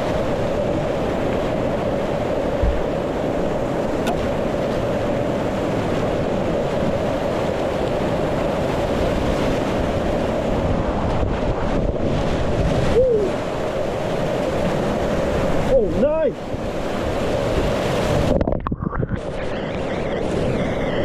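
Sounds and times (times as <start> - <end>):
wind buffeting microphone: 0.0 - 21.0
whitewater rapids rushing: 19.2 - 21.0.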